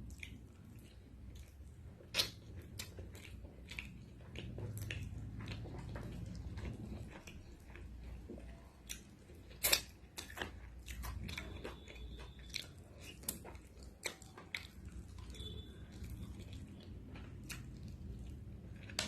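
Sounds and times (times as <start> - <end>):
wet chewing and biting: 0.0 - 19.0
mouth clicks and smacks: 2.1 - 3.0.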